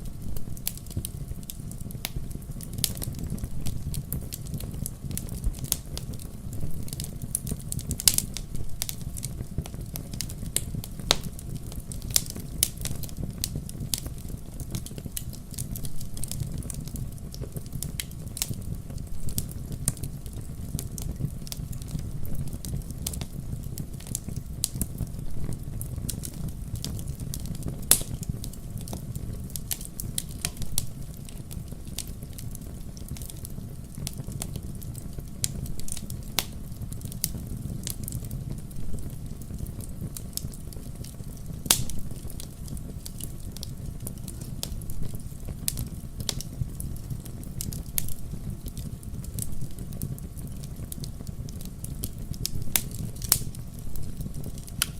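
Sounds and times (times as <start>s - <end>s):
logs crackling and popping: 0.0s - 54.9s
low rumble of flames: 0.0s - 54.9s.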